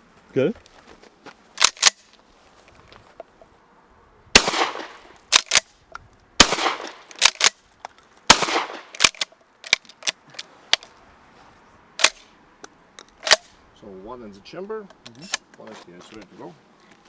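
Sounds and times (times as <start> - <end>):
shotgun shots: 4.4 - 5.6, 6.4 - 7.5, 8.3 - 9.2
shotgun pump clacking: 5.3 - 5.6, 6.8 - 7.6, 8.9 - 10.5, 13.0 - 13.5.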